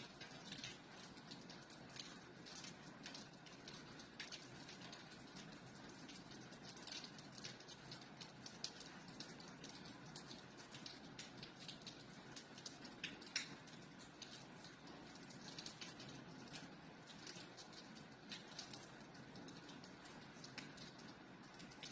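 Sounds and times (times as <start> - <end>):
gentle rain hiss: 0.0 - 21.9
raindrops tapping: 0.0 - 21.9.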